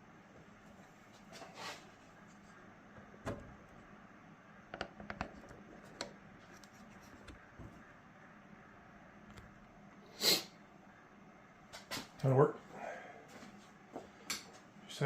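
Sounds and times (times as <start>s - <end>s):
metal clicks and taps: 4.7s - 6.2s.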